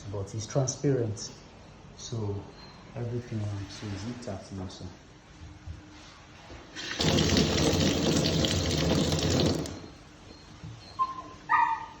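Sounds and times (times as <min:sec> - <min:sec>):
tap water running into sink: 0:06.8 - 0:09.9.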